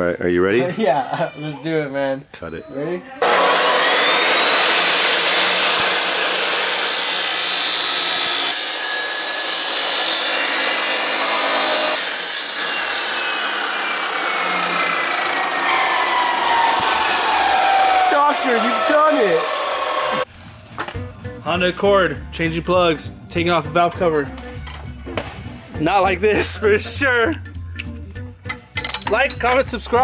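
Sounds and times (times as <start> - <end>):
power cutter grinding metal: 3.2 - 20.3.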